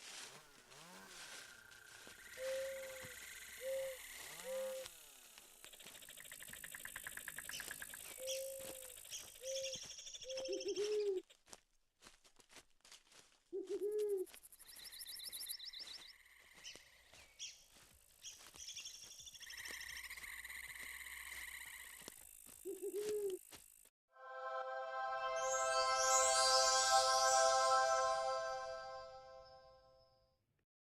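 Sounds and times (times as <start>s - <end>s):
birds hooting: 2.2s - 4.9s, 8.2s - 8.8s, 9.4s - 11.2s, 22.7s - 23.4s.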